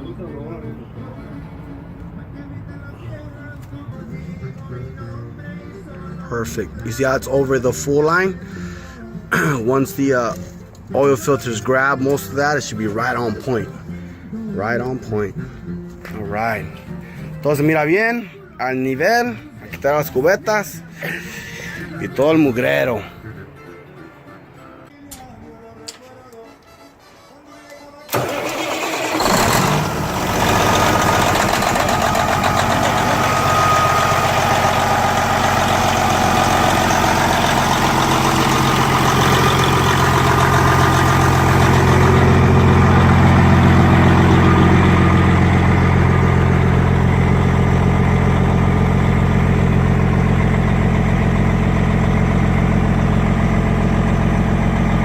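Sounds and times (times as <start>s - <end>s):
diesel truck engine idling: 0.0s - 17.6s, 28.1s - 55.0s.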